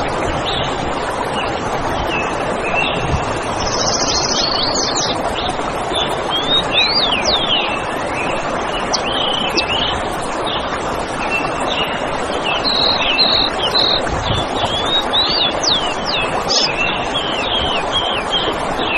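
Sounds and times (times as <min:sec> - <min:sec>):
forest birds chirping: 0:15.1 - 0:17.0.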